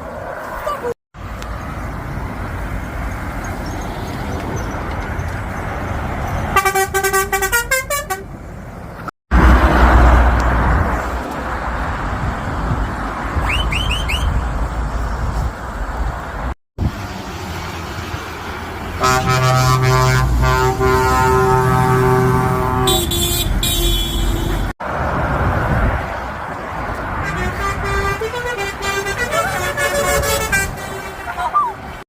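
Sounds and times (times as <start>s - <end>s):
road traffic passing: 0.0s - 32.0s
heavy truck rumble: 0.6s - 32.0s
truck air horn blasts: 6.6s - 8.3s, 19.0s - 24.7s, 27.2s - 31.3s.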